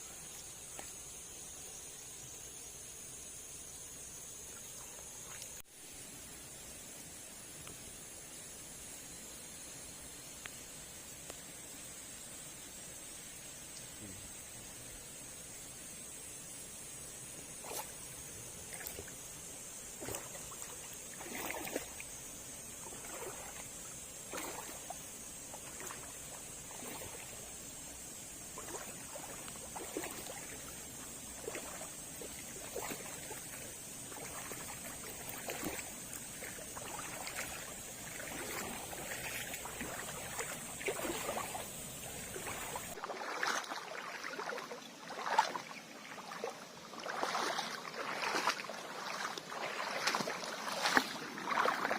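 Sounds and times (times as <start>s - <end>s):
high insect drone: 0.0s - 51.9s
waterfall splashing and trickling: 28.5s - 45.7s.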